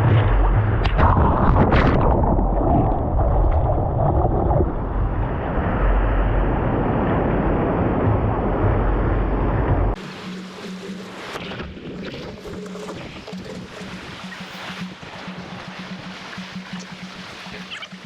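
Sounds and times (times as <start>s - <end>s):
wind on microphone: 0.0s - 10.0s
ocean surf roar: 1.1s - 17.8s.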